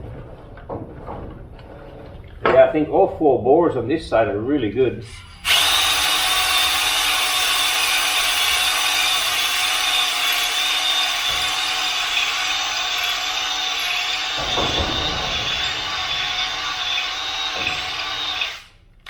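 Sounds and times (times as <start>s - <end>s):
hone rasping on metal bore: 5.2s - 18.7s
electric drill whine: 5.2s - 18.8s.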